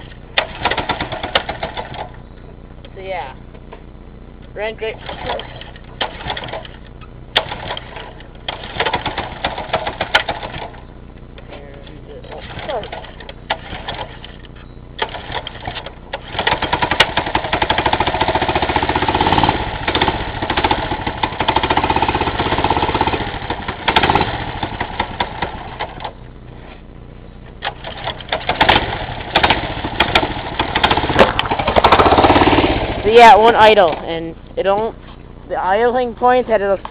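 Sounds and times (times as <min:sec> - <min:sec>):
mini bike engine revving: 0:00.0 - 0:02.1, 0:05.0 - 0:06.8, 0:07.4 - 0:10.8, 0:12.3 - 0:14.4, 0:15.0 - 0:26.1, 0:27.7 - 0:34.2.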